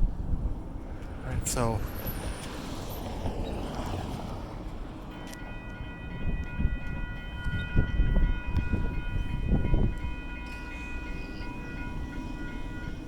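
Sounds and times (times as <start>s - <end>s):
railroad crossing bells ringing: 4.5s - 13.0s.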